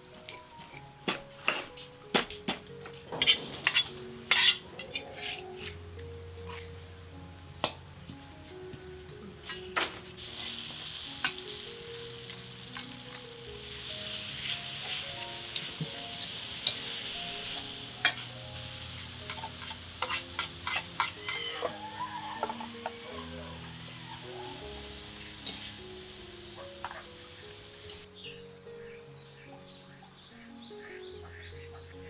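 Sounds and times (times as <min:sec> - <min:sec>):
soft background music: 0:00.0 - 0:32.0
metal spatula scraping wok: 0:03.0 - 0:05.8, 0:12.7 - 0:21.7, 0:25.4 - 0:25.8
food sizzling in hot oil: 0:10.2 - 0:28.1
spatula clinking on wok: 0:19.3 - 0:21.4.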